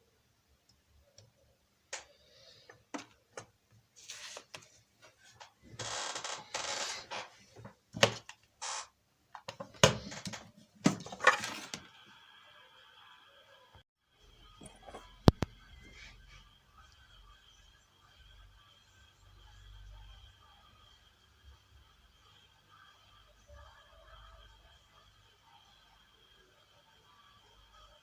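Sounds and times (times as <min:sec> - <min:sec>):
scraping or rustling: 0:10.9 - 0:11.9.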